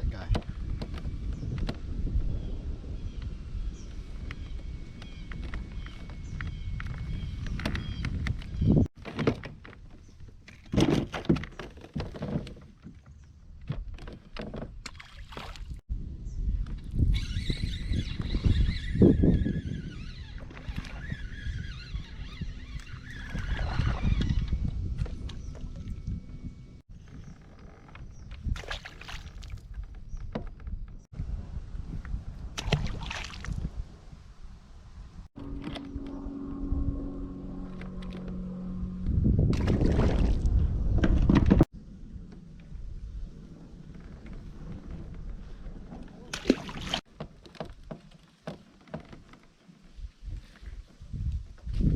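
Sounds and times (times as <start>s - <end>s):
wind rumble on microphone: 0.0s - 11.4s, 12.0s - 47.1s, 49.8s - 51.9s
water splashing around a kayak: 14.0s - 15.8s, 28.4s - 29.9s, 32.5s - 34.0s, 39.5s - 40.6s, 43.4s - 50.1s.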